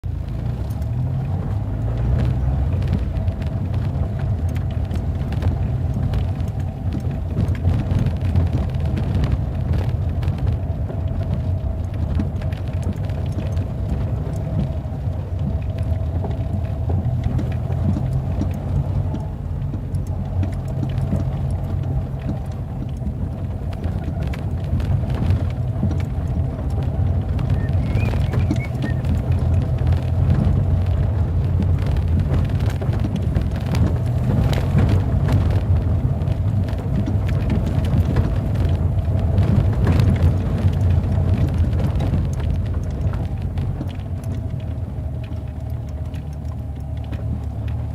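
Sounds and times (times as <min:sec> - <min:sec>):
vehicle rumbling: 0:00.0 - 0:47.9
small rattles and knocks: 0:00.3 - 0:47.9.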